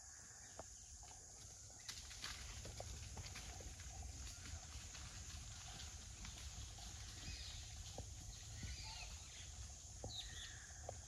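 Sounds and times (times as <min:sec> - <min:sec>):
small birds chirping: 0:06.1 - 0:11.0.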